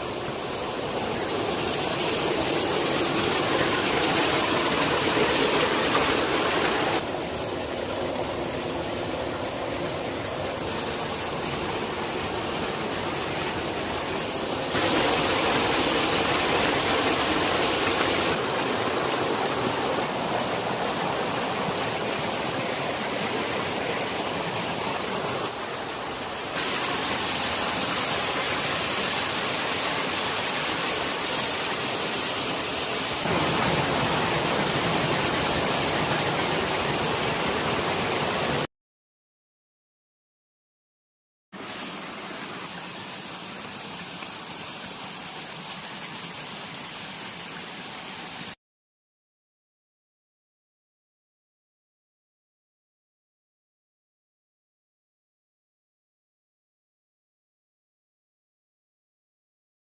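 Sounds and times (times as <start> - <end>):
rushing stream water: 0.0 - 38.7, 41.6 - 48.6.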